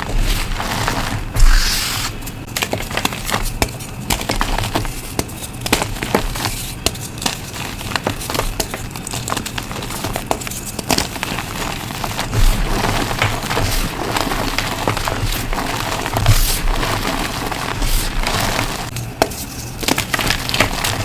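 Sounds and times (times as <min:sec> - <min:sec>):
crumbling hiss: 0:00.0 - 0:18.9
chalk crunching and cracking: 0:00.0 - 0:21.0.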